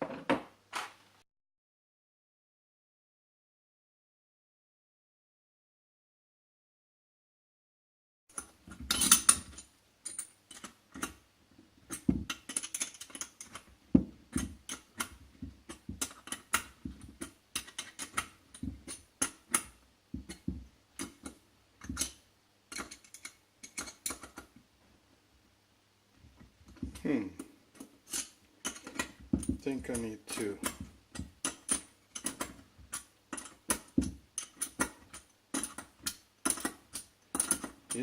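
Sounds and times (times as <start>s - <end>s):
metal parts and tools clinking: 8.3s - 11.2s, 11.8s - 24.5s, 26.6s - 38.0s.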